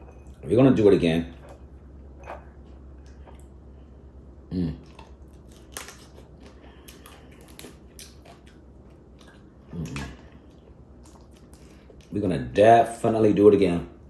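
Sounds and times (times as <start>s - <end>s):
chewing: 1.4s - 3.6s, 4.8s - 12.2s
crab shells cracking: 5.3s - 8.6s.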